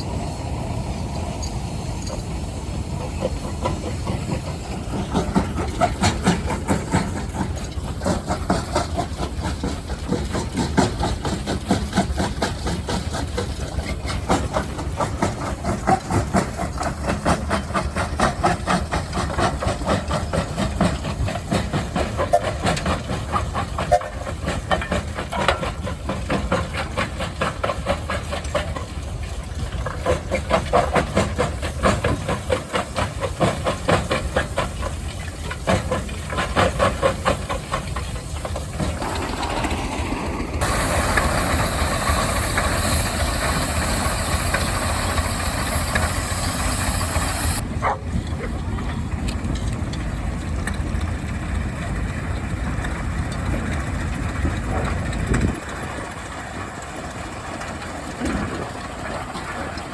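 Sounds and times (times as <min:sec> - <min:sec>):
steam hissing: 0:00.0 - 0:47.6
steam engine exhaust chuffing: 0:00.0 - 0:59.9.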